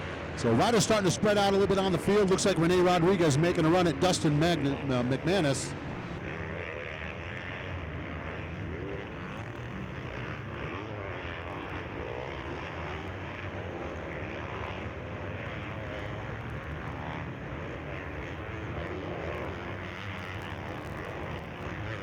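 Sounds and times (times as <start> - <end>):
motocross bike engines revving: 0.0 - 6.3.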